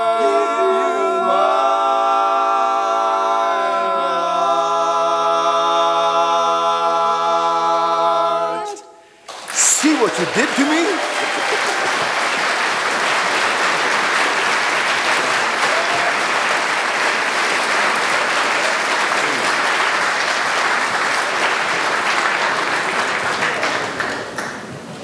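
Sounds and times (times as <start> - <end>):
audience applauding: 9.2 - 25.0.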